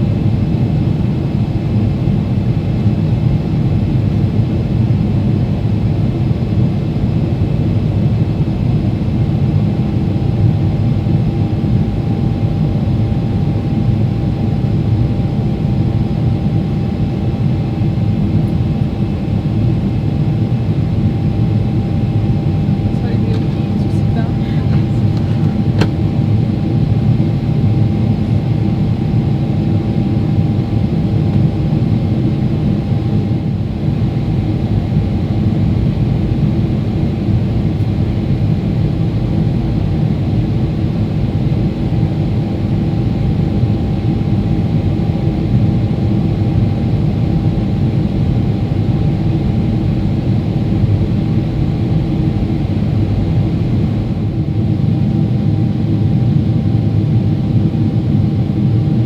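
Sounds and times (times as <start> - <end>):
jet engines rumbling: 14.7 - 40.6
faint steady hum: 21.3 - 30.5.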